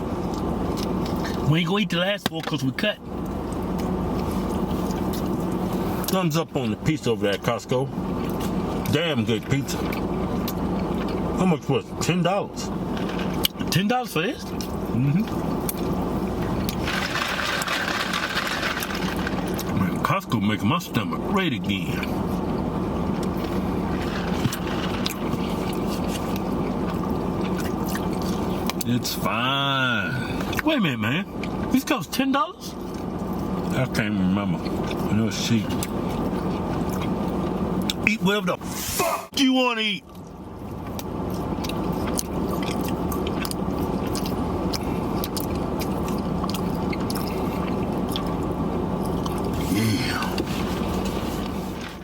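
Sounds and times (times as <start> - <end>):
steady low hum: 0.0 - 52.0
vehicle engine rumble: 0.0 - 52.0
person chewing food: 22.4 - 28.8, 40.1 - 51.6.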